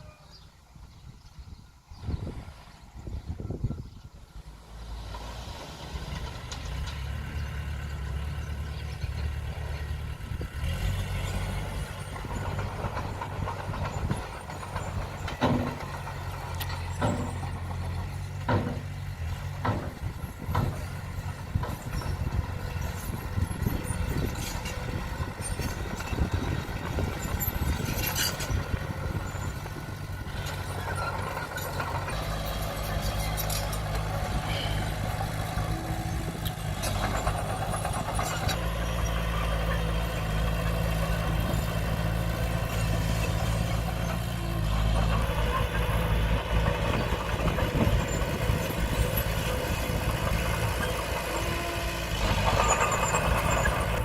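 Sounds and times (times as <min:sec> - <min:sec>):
bulldozer diesel engine running: 0:02.2 - 0:54.0
sharp knocks: 0:18.5 - 0:18.9.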